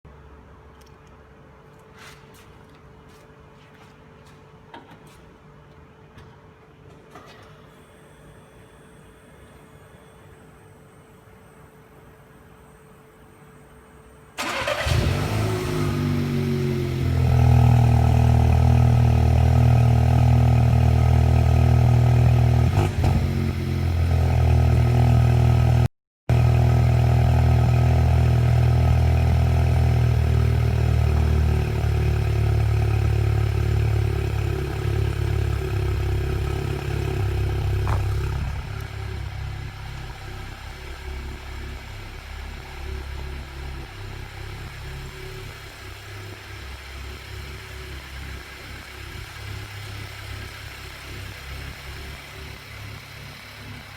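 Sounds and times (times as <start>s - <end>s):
car engine idling: 14.4s - 22.7s, 23.3s - 53.9s.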